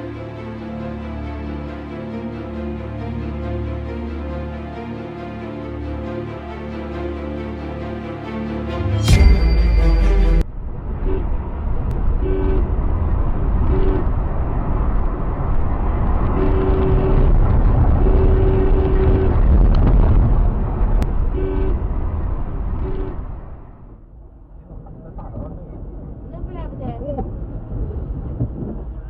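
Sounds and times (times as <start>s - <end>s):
road and engine rumble: 0.0s - 29.0s
car horn honking: 12.2s - 12.7s, 16.4s - 17.2s, 21.3s - 21.8s.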